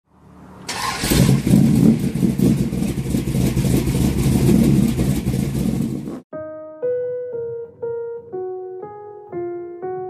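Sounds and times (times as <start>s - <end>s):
car engine rumbling: 0.2s - 6.3s.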